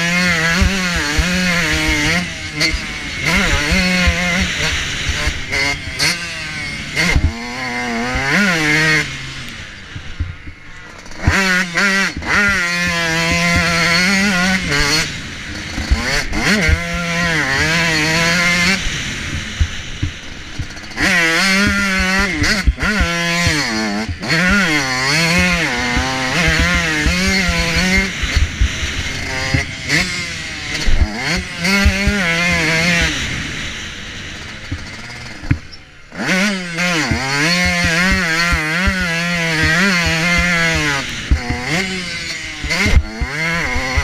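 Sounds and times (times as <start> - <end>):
motocross bike engine revving: 0.0 - 44.0
sharp knocks from bike: 34.6 - 35.8.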